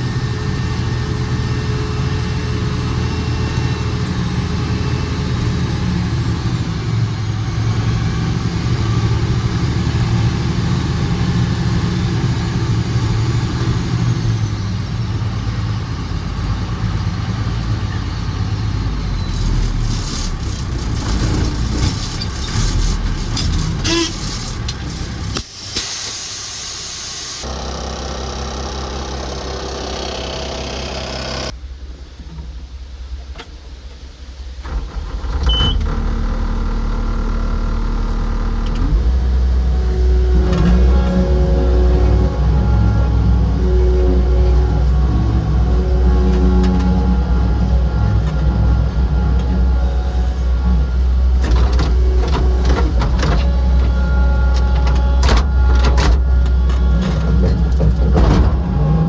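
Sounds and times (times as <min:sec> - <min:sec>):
diesel engine running: 0:00.0 - 0:31.6, 0:34.4 - 0:59.0
rattling and knocks: 0:40.0 - 0:59.0.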